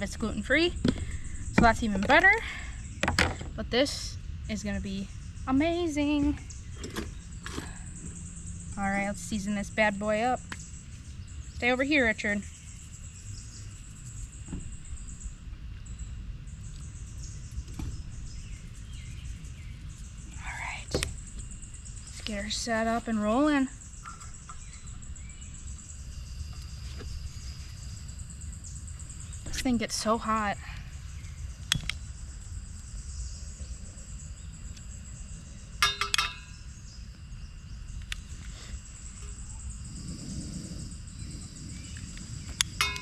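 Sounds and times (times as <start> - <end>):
insects trilling: 0.0 - 43.0
steady low rumble: 0.0 - 43.0
faint bird chirps: 3.8 - 43.0
metal cookware clinking: 35.8 - 36.6, 42.8 - 43.0
low rumble: 36.5 - 43.0.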